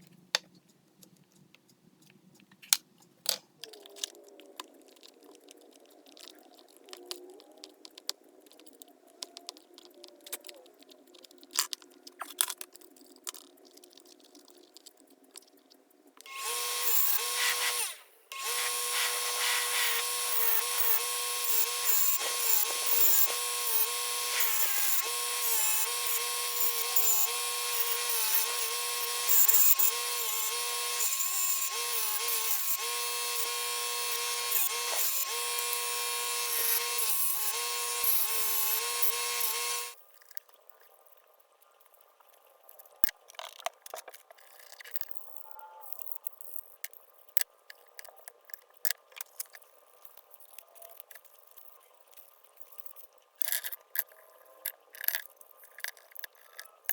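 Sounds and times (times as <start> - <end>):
power tool motor whirring: 16.3 - 40.0
small parts clinking: 16.3 - 40.3.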